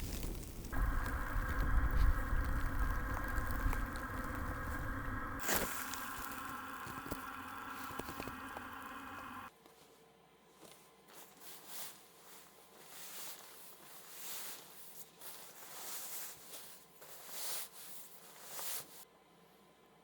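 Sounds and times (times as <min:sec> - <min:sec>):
steady multi-tone sound: 0:00.7 - 0:09.5
rustling and handling noises: 0:10.6 - 0:19.0.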